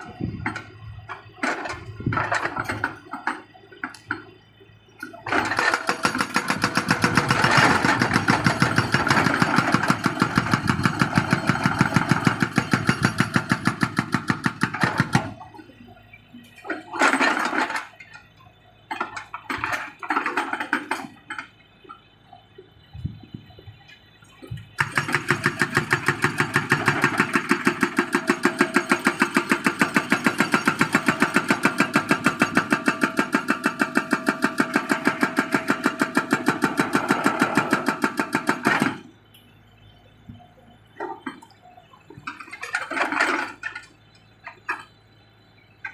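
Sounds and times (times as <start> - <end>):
excavator engine: 0.0 - 45.9
hydraulic breaker hammering: 5.2 - 15.6, 24.8 - 39.2.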